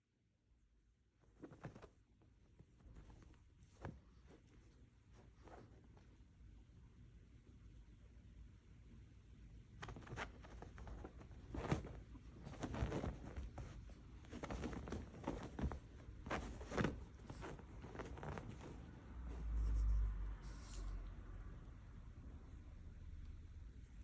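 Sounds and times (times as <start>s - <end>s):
soft rustles: 1.1s - 6.8s, 9.6s - 22.3s.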